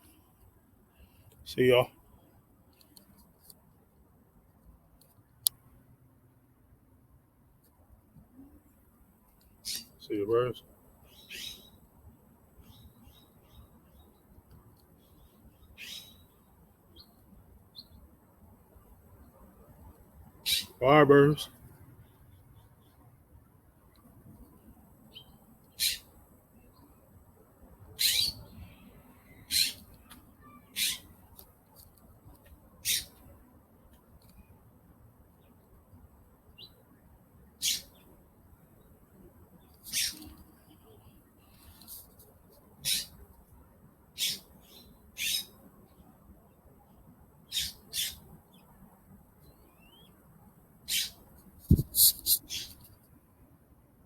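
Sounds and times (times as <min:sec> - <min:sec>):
birds squawking harshly: 0:09.6 - 0:09.9, 0:11.1 - 0:11.7, 0:15.8 - 0:16.2, 0:20.4 - 0:20.8, 0:25.8 - 0:26.1, 0:28.0 - 0:28.5, 0:29.4 - 0:29.8, 0:30.4 - 0:31.1, 0:32.8 - 0:33.2, 0:37.6 - 0:38.0, 0:39.8 - 0:40.3, 0:42.8 - 0:43.2, 0:44.2 - 0:45.6, 0:47.5 - 0:48.2, 0:50.9 - 0:52.8
faint bird chirps: 0:11.0 - 0:11.8, 0:14.9 - 0:18.0, 0:24.6 - 0:27.0, 0:28.0 - 0:31.1, 0:37.6 - 0:38.1, 0:44.2 - 0:46.5, 0:47.4 - 0:48.8, 0:49.4 - 0:50.2, 0:50.9 - 0:52.9.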